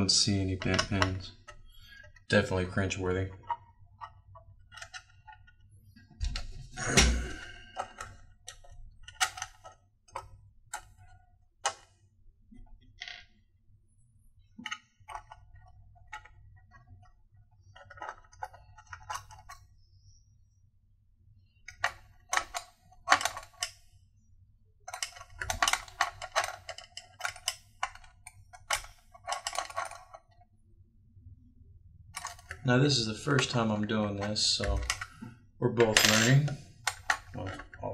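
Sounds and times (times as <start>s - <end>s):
small clicks of computer parts: 24.9s - 30.4s.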